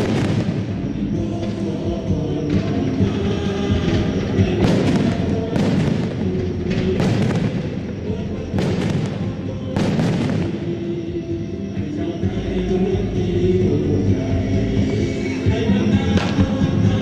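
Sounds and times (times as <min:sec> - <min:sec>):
fireworks bangs and crackle: 0:00.0 - 0:11.9, 0:15.8 - 0:17.0
music from loudspeakers: 0:00.0 - 0:17.0.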